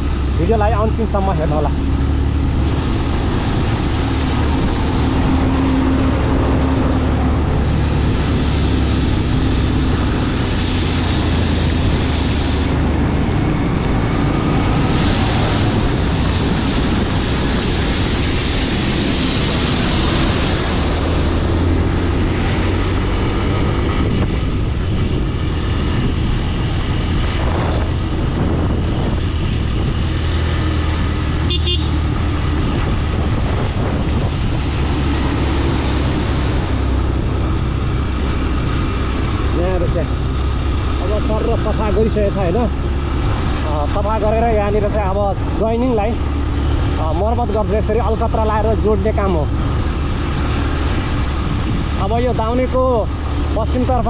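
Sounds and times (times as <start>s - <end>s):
vehicle and road noise: 0.0s - 54.0s.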